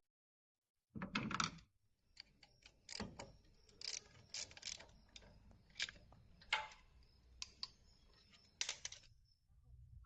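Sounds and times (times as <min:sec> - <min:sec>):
hand tool tightening bolt: 0:02.2 - 0:06.2.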